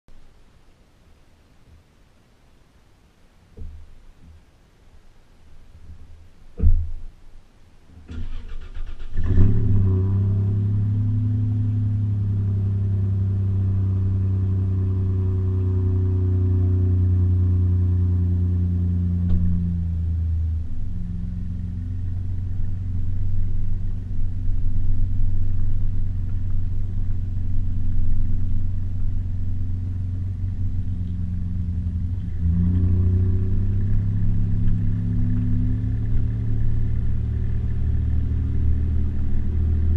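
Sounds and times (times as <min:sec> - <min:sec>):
thump: 0:03.6 - 0:04.4, 0:06.6 - 0:07.1, 0:19.2 - 0:19.6
car engine starting and idling: 0:07.9 - 0:39.9.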